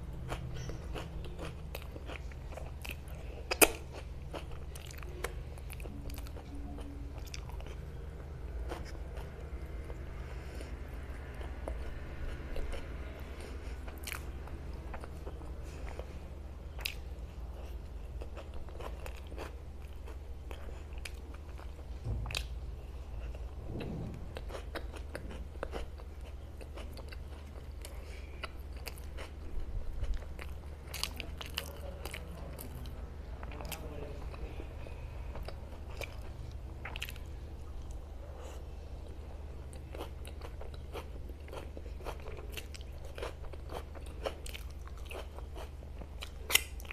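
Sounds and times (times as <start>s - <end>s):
steady low hum: 0.0s - 46.9s
wet chewing and smacks: 0.2s - 7.9s, 16.7s - 23.6s, 35.3s - 38.6s, 39.7s - 46.9s.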